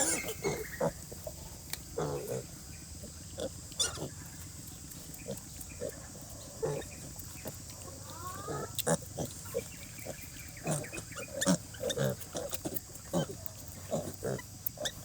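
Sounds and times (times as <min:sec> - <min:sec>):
pig squealing: 0:00.0 - 0:00.9, 0:03.8 - 0:04.1, 0:08.1 - 0:15.0
pigs grunting: 0:00.0 - 0:15.0.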